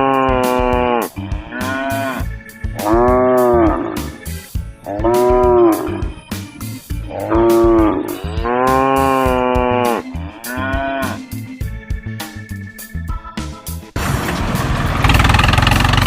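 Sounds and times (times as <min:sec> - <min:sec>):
cow mooing: 0:00.0 - 0:06.2, 0:07.0 - 0:11.2
background music with beat: 0:00.0 - 0:14.0.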